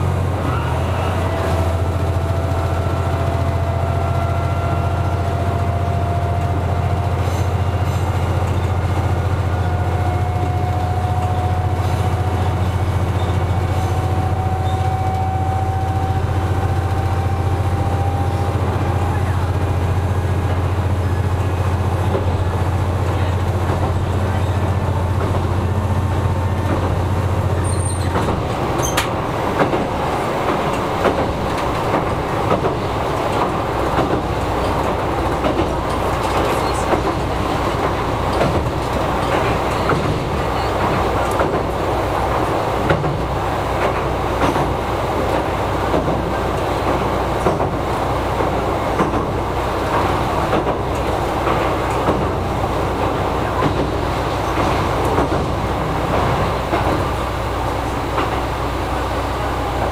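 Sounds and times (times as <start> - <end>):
diesel engine drone: 0.0 - 59.9
train wheels clicking on rails: 0.0 - 59.9.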